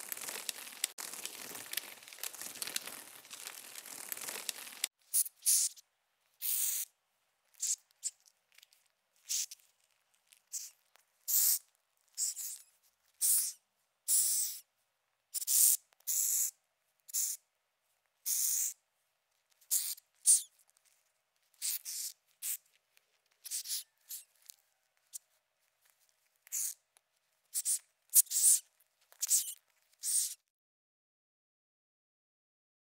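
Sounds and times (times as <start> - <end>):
cockroach hissing: 4.1 - 5.8, 6.4 - 6.9, 7.6 - 7.8, 9.3 - 9.5, 10.5 - 10.7, 11.3 - 11.6, 12.2 - 12.6, 13.2 - 14.6, 15.4 - 16.5, 17.1 - 17.4, 18.3 - 18.8, 19.7 - 20.5, 21.6 - 22.6, 23.5 - 24.2, 26.5 - 26.8, 27.6 - 28.6, 29.2 - 30.4.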